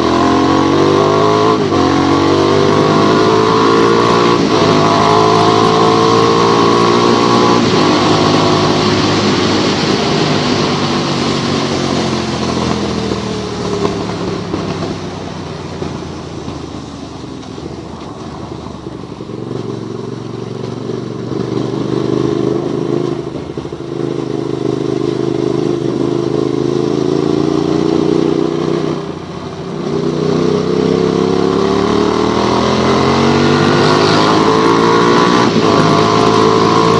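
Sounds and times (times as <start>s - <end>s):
motorcycle engine accelerating: 0.0s - 36.9s
wind and wet road hiss: 4.3s - 31.5s.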